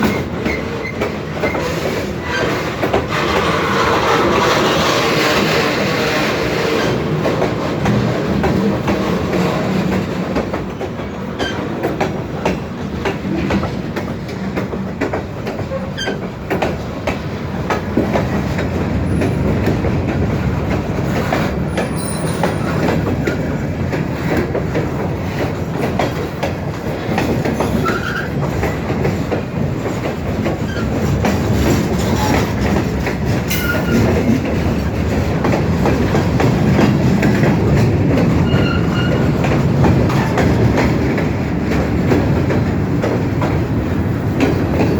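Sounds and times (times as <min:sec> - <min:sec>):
train wheels clacking over joints: 0:00.0 - 0:44.9
high wheel squeals: 0:21.8 - 0:22.8, 0:38.4 - 0:39.3.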